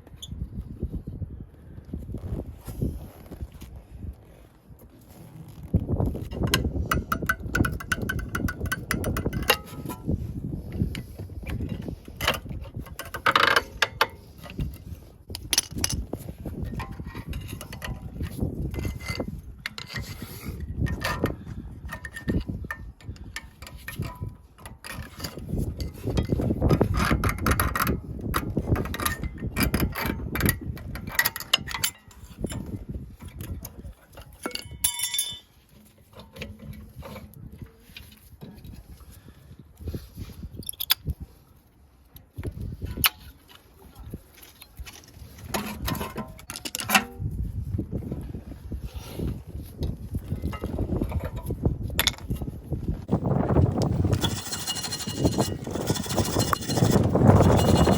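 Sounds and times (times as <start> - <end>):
hand tools clanking on metal: 6.3 - 10.1, 28.8 - 33.4, 34.1 - 37.3, 53.1 - 57.9.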